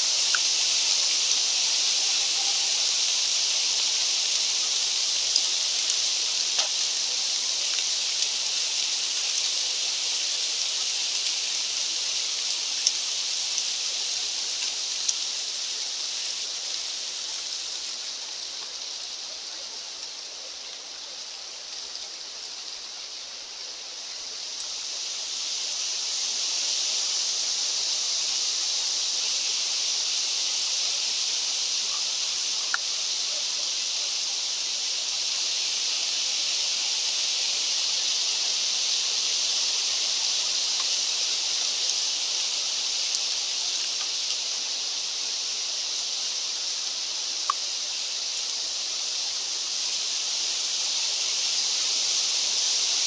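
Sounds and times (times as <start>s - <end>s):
faint clicks: 5.3s - 6.8s, 32.7s - 32.9s.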